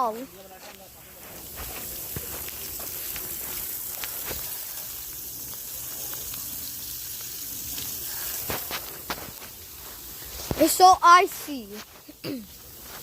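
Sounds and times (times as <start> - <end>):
freezing rain hissing on ice: 0.0 - 13.0.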